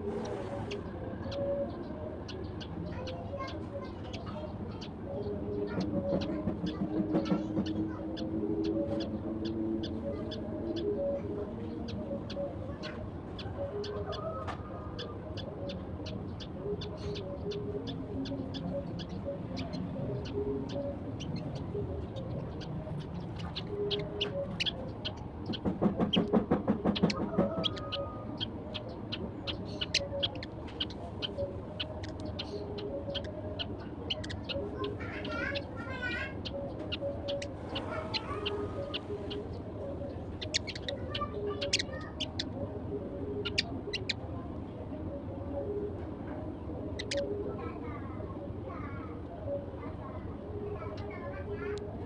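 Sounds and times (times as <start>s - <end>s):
other birds calling: 0.0s - 44.3s, 46.8s - 47.5s
sparrows chirping: 0.0s - 51.8s.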